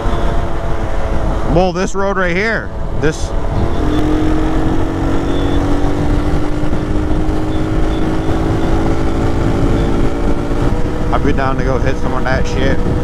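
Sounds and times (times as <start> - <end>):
motorcycle engine cruising: 0.0 - 13.0
wind rumble on microphone: 0.0 - 13.0.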